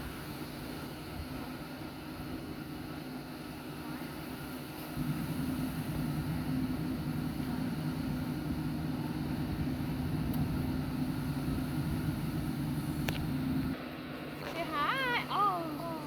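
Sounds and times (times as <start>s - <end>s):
truck engine humming: 4.7s - 16.0s.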